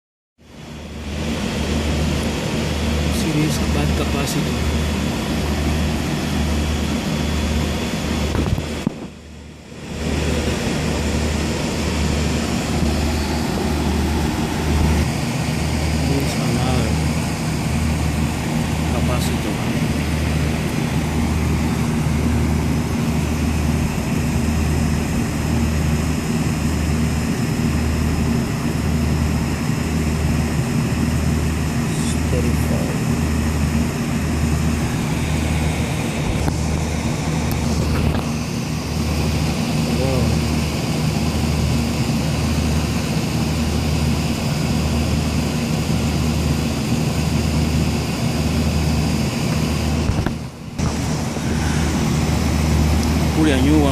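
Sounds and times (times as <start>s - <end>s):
air conditioner humming: 1.2s - 53.9s
fan hiss: 47.2s - 53.9s.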